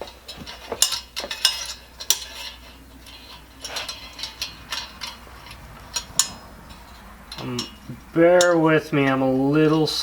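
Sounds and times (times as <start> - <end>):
light metallic clicks and clinks: 0.0 - 10.0.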